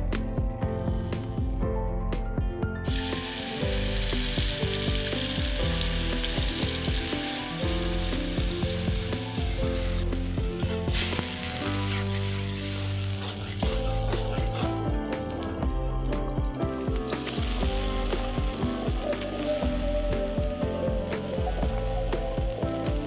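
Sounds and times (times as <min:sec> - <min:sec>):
background music with sustained notes: 0:00.0 - 0:23.0
liquid sizzling in hot wok: 0:02.8 - 0:23.0.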